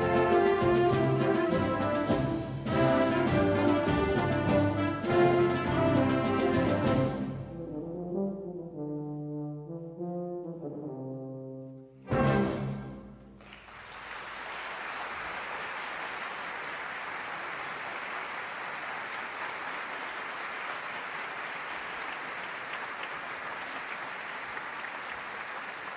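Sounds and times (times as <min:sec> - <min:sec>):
concert band with tuba: 0:00.0 - 0:19.8
audience applause: 0:13.4 - 0:25.9.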